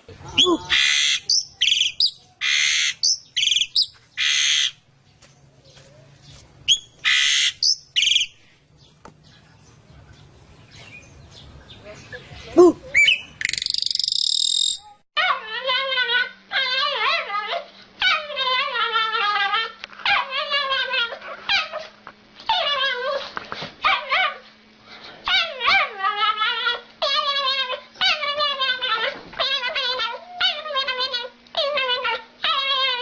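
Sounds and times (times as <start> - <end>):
animal making wavering calls: 0.1 - 4.8.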